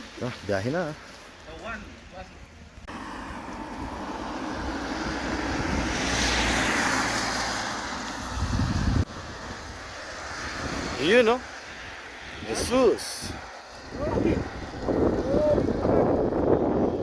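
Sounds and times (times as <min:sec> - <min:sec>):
vehicle passing by: 0:02.8 - 0:17.0.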